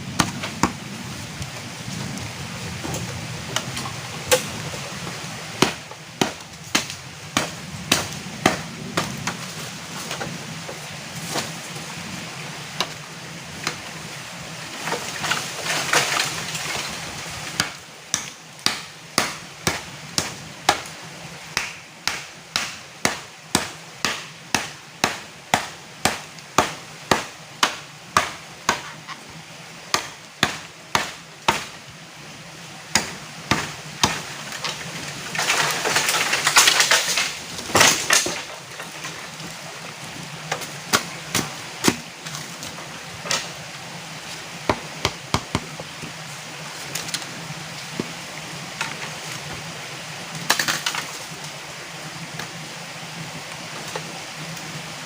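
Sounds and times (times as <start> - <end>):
water noise: 0.0 - 55.0
sharp chopping strikes: 5.6 - 9.4, 17.6 - 20.9, 21.6 - 28.9, 29.9 - 31.7, 32.9 - 34.2.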